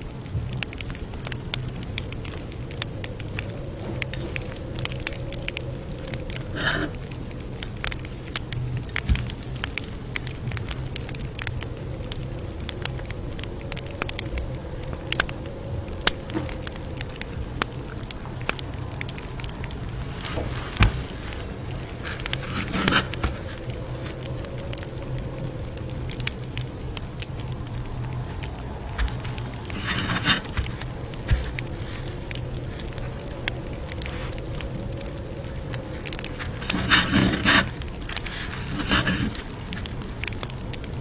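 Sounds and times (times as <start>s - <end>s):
campfire crackling and popping: 0.0s - 41.0s
low rumble of flames: 0.0s - 41.0s
rustling: 2.2s - 7.0s, 18.4s - 40.8s.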